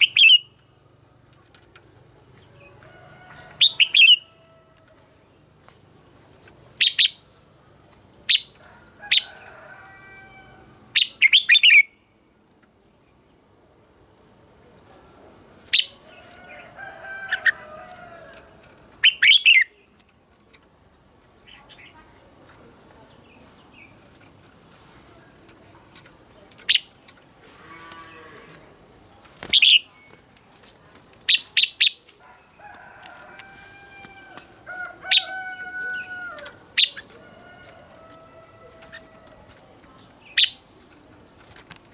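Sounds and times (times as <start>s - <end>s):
bird song sharp phrases: 6.8s - 7.4s, 11.0s - 12.2s, 29.4s - 30.2s, 31.3s - 32.0s, 39.9s - 41.5s.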